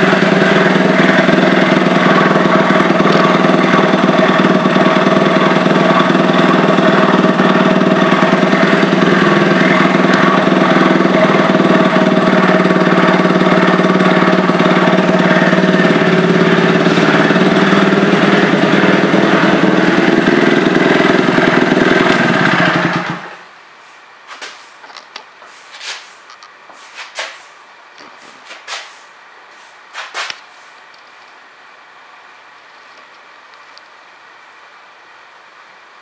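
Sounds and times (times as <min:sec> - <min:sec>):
single-cylinder engine running: 0:00.0 - 0:23.7.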